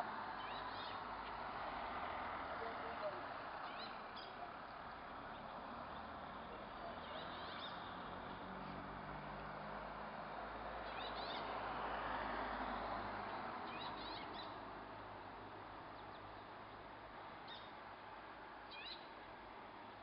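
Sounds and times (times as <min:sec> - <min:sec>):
birds chirping: 0:00.3 - 0:01.1, 0:02.6 - 0:08.1, 0:10.8 - 0:11.6, 0:13.6 - 0:14.6, 0:18.7 - 0:19.2.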